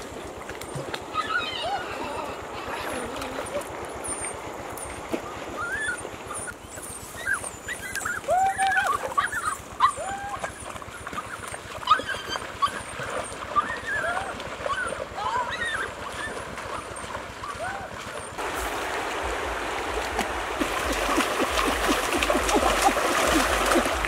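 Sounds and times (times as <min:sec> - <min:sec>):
dog whining and yelping: 0:01.1 - 0:02.1, 0:05.5 - 0:18.4.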